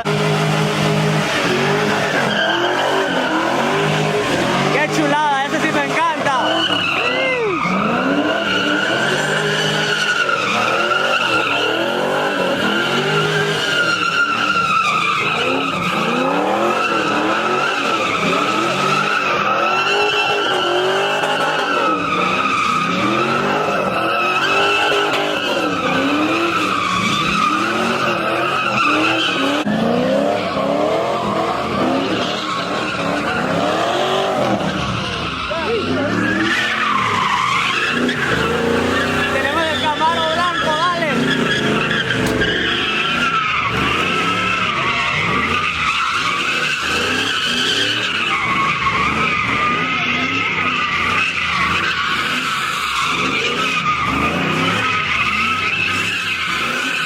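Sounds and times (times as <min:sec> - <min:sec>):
engine revving up and down: 0:00.0 - 0:57.0
tyres squealing: 0:00.4 - 0:57.0.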